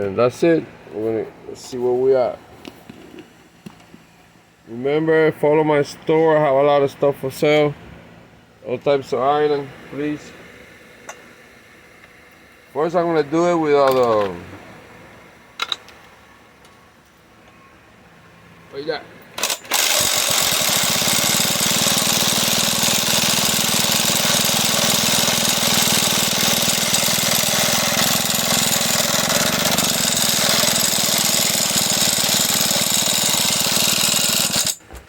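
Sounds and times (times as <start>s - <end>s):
chainsaw engine turning over: 19.4s - 34.8s.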